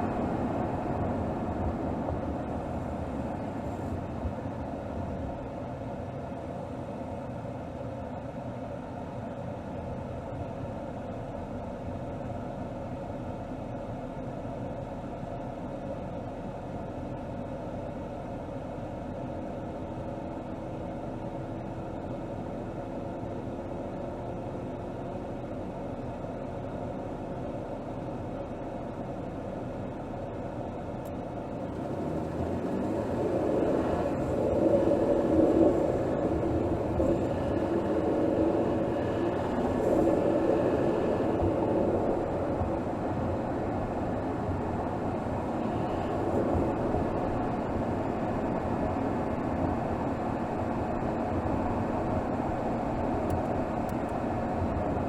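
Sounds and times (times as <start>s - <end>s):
car engine running: 31.1s - 55.0s.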